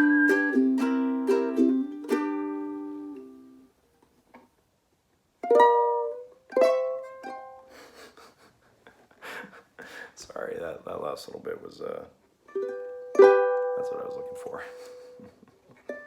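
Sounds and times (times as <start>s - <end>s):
ukulele chords strummed: 0.0s - 3.7s, 5.4s - 7.7s, 12.5s - 16.0s.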